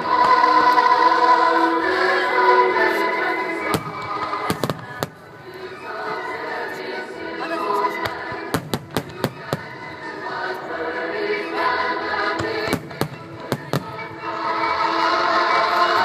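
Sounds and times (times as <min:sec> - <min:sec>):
music with long held notes: 0:00.0 - 0:16.0
firework bangs: 0:03.7 - 0:05.3, 0:12.4 - 0:14.1.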